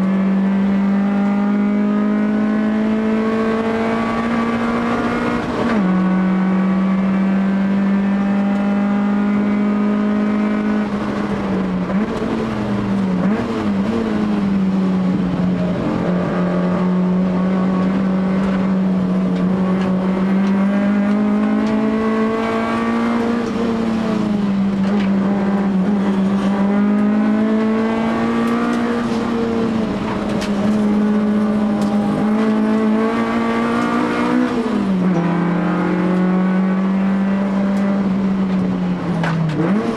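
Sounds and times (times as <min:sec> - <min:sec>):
race car engine at high revs: 0:00.0 - 0:39.9.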